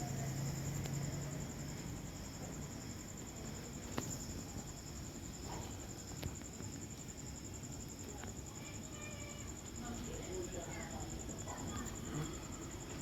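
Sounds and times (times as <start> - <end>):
cricket trilling: 0.0 - 13.0.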